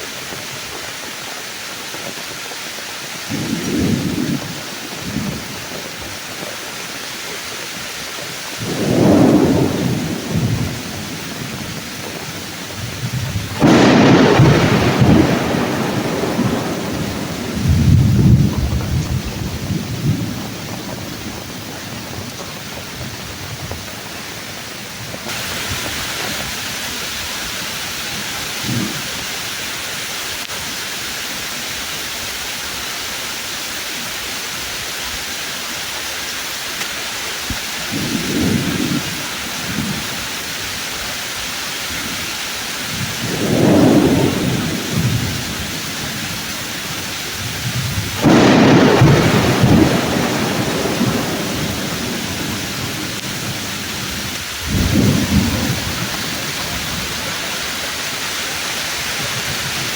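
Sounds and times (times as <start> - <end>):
heavy rain: 0.0 - 59.9
thunder rumbling: 3.2 - 30.0, 37.4 - 40.9, 41.7 - 59.9.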